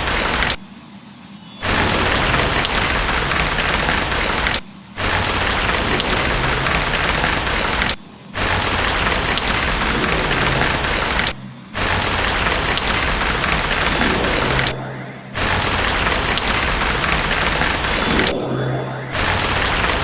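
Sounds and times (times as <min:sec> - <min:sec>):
heavy rain: 0:01.6 - 0:20.0
low thunder rumble: 0:05.0 - 0:20.0.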